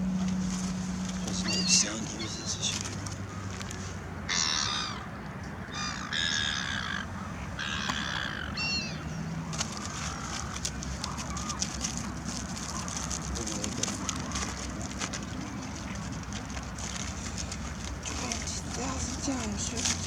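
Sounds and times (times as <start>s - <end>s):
fine crackling patter: 0.0s - 4.1s, 9.4s - 20.0s
harsh bird calls: 1.2s - 3.6s, 5.7s - 11.6s.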